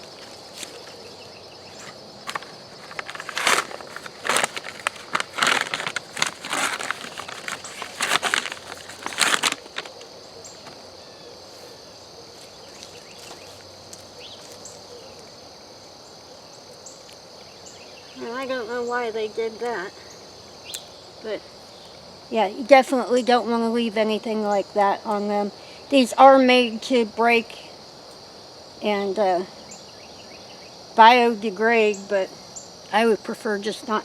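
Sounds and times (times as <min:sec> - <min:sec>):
soil and roots crunching and tearing: 0:01.8 - 0:09.9.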